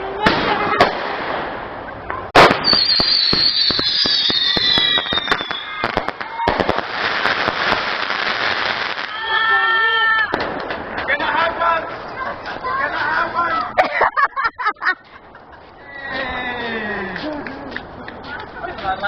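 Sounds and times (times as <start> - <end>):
firework bangs: 0.2 - 11.6
dense firework crackle: 2.3 - 11.6
whistling firework shots: 2.4 - 10.7.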